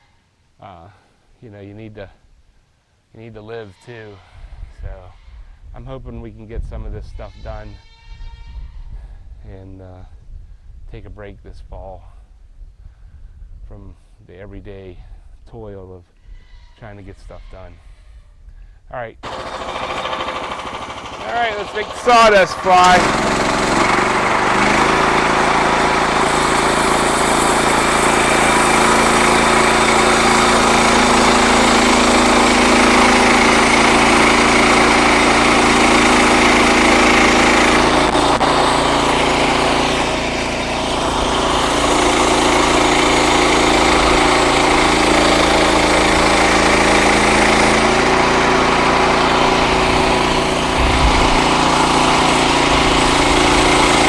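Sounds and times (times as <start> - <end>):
bandsaw sawing log: 19.2 - 54.0
sawmill gas engine running: 19.2 - 54.0.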